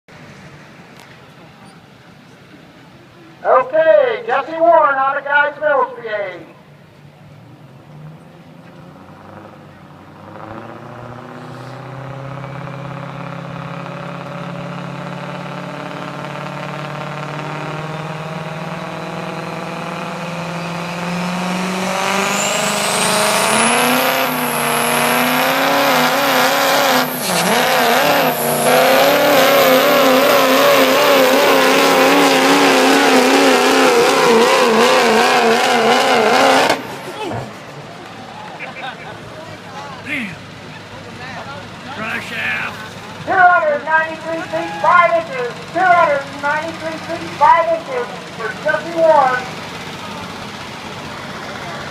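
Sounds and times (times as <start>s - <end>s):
truck engine at full throttle: 6.7s - 51.9s.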